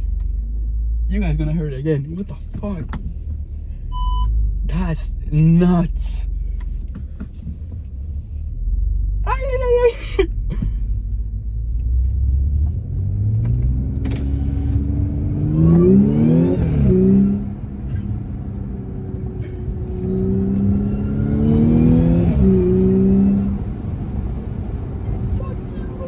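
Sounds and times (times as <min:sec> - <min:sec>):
car engine accelerating hard: 0:10.5 - 0:26.0.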